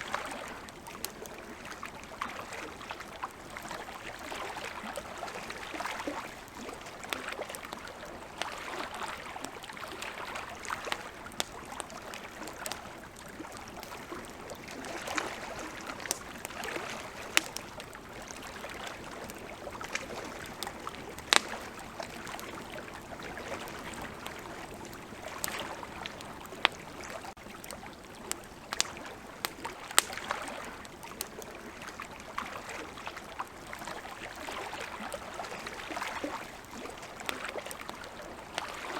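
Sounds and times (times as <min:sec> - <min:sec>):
campfire crackling: 0:00.0 - 0:38.9
running river water: 0:00.0 - 0:38.9
fire popping: 0:03.1 - 0:32.0.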